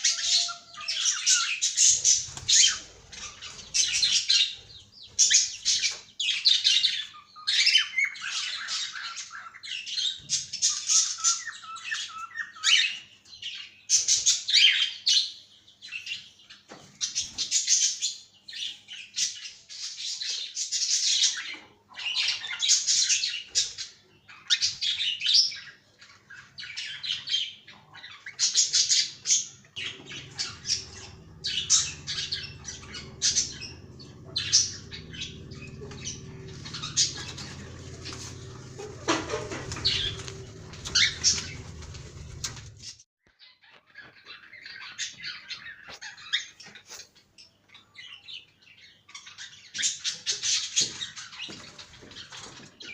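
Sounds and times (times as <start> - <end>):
cockatiels calling harshly: 0.0 - 15.2, 20.2 - 47.0
low steady hum: 29.8 - 42.8.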